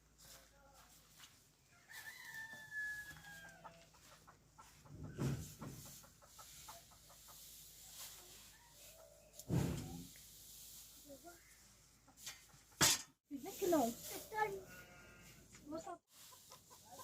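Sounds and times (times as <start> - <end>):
rooster crowing: 1.8 - 3.8.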